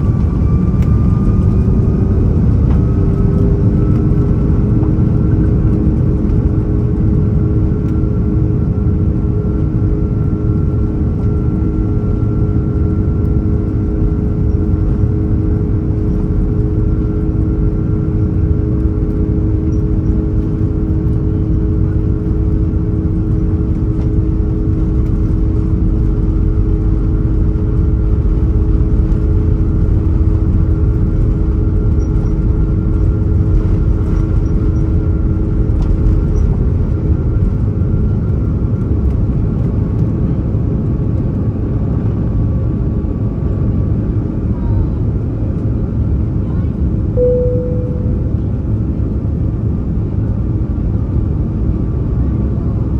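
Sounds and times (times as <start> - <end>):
jet engine drone: 0.0 - 46.4
steady humming tones: 47.2 - 49.4.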